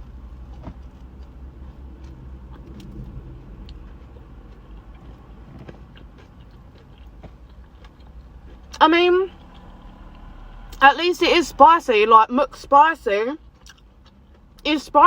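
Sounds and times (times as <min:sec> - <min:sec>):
person chewing: 0:00.0 - 0:10.3, 0:13.4 - 0:14.7
low steady hum: 0:00.0 - 0:15.0.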